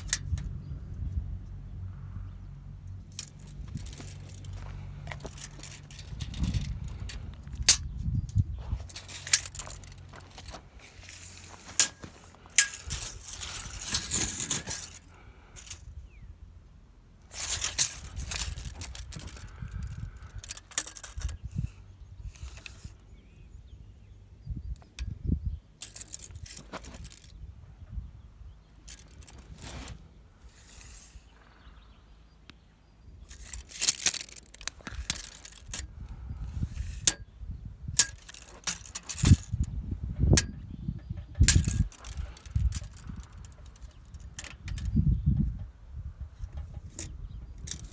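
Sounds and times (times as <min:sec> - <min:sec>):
sharp clicks and knocks: 0:08.8 - 0:15.0.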